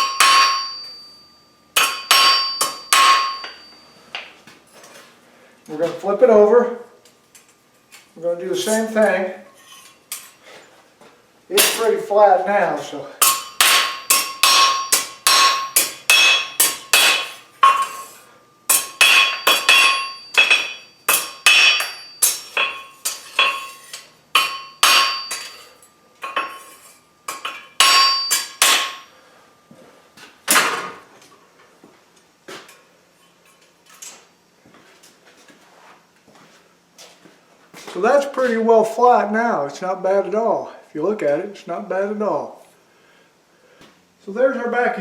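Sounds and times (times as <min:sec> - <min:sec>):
hammer ringing on steel: 0:00.0 - 0:04.2, 0:13.2 - 0:26.6, 0:27.3 - 0:29.1.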